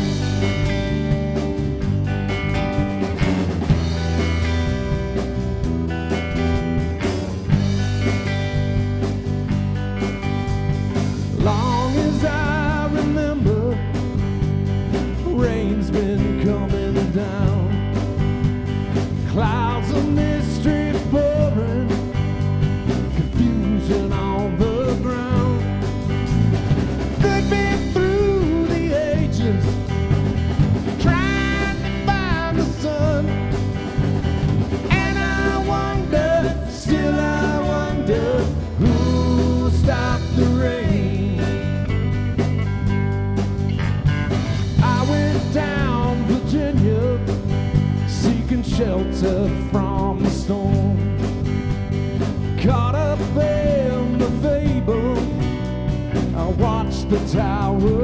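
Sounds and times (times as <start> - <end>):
rock band playing: 0.0 - 58.0
lead vocal singing: 11.4 - 14.2, 15.0 - 18.0, 19.2 - 22.4, 23.0 - 26.0, 27.1 - 30.1, 30.9 - 34.0, 34.7 - 42.0, 44.8 - 51.2, 52.6 - 55.5, 56.3 - 58.0.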